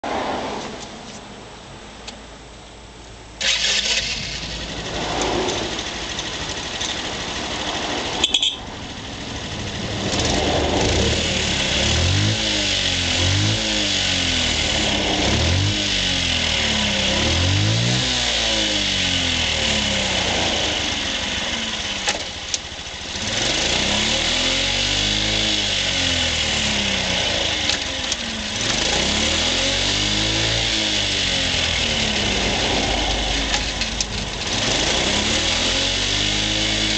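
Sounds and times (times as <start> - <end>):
scooter engine revving: 3.4 - 36.9.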